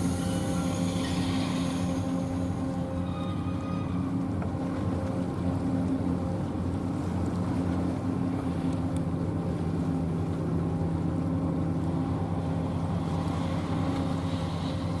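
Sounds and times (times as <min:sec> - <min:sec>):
ship engines droning: 0:00.0 - 0:15.0.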